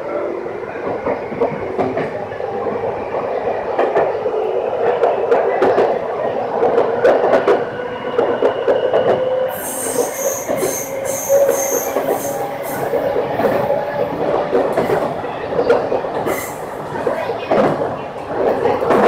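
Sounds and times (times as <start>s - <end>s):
high-pitched wheel squeal: 8.4s - 13.0s.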